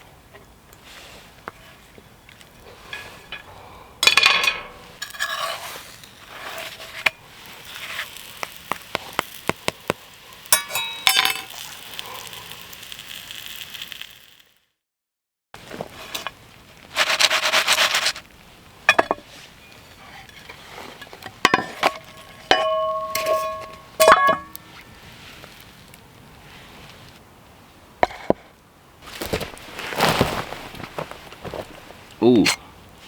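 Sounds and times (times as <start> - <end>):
metal frying pan knocks and clanks: 22.5 - 24.6.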